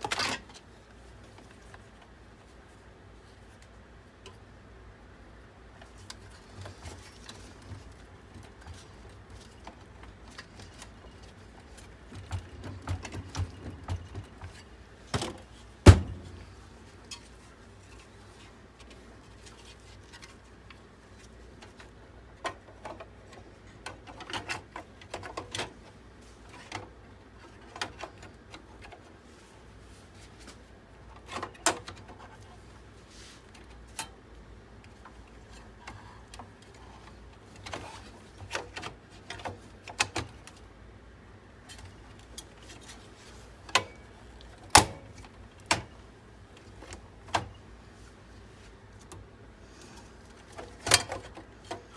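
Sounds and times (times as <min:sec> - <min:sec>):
clicks and knocks of computer parts: 0:05.8 - 0:18.2, 0:21.6 - 0:25.8, 0:26.5 - 0:29.1, 0:31.1 - 0:32.5, 0:34.9 - 0:40.6, 0:41.7 - 0:46.0, 0:46.6 - 0:47.6, 0:49.0 - 0:51.9.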